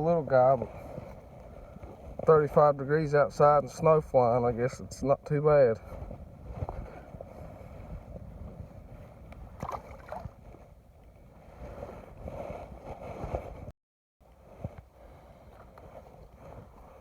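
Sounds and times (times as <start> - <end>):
wind: 0.0 - 17.0
water lapping against boat hull: 9.6 - 10.6.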